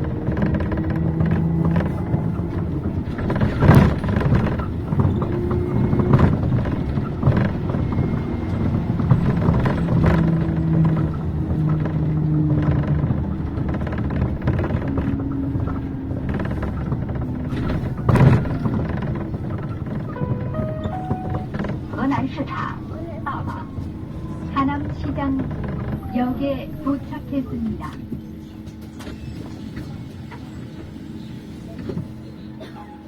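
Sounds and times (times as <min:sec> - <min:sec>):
knocks and rattles: 0:00.0 - 0:22.2, 0:22.8 - 0:26.2
bus engine and road rumble: 0:00.0 - 0:33.0
humming tone: 0:20.1 - 0:22.0.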